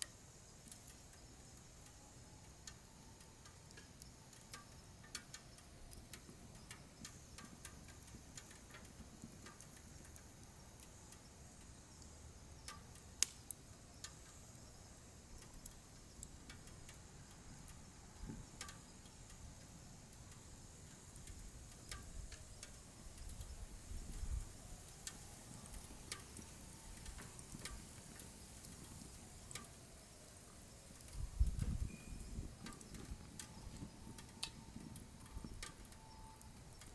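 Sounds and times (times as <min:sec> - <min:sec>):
firewood crackling and popping: 0:00.0 - 0:36.9
low rumble of flames: 0:00.0 - 0:36.9.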